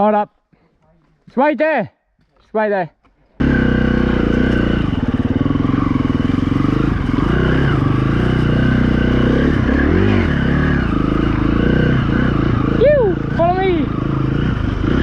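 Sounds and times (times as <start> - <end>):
dirt bike engine revving: 3.4 - 15.0.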